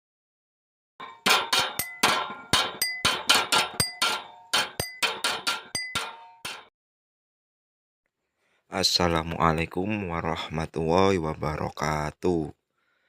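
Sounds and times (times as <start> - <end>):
rapid metallic strikes: 1.0 - 6.7.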